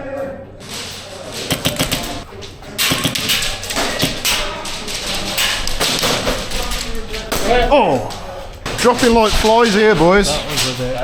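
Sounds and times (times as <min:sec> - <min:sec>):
pellets striking walls: 0:00.6 - 0:11.0
airsoft gunfire: 0:01.3 - 0:07.9.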